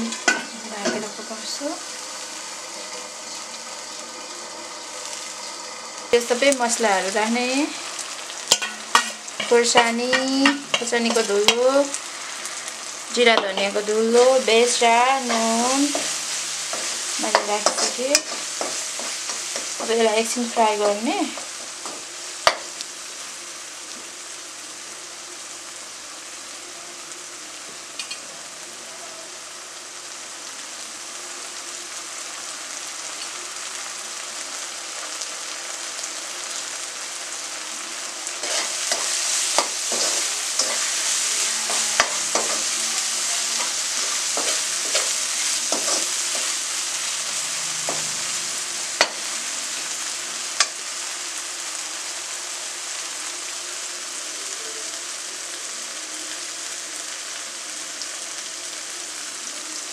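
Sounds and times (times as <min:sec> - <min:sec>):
masala sizzling in oil: 0:00.0 - 0:59.9
metal spatula scraping pan: 0:08.4 - 0:11.7, 0:13.4 - 0:22.6, 0:38.4 - 0:50.0.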